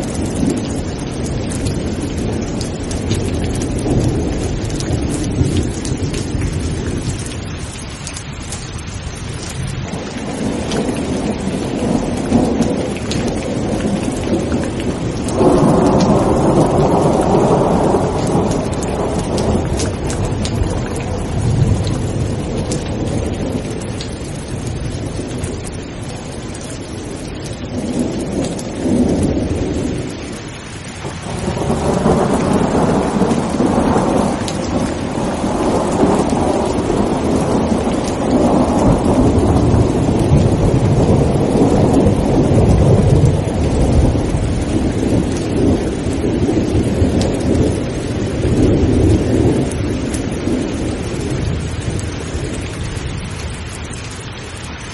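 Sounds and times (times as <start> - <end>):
thunder rumbling: 0.0 - 54.6
heavy rain hissing: 0.0 - 54.9.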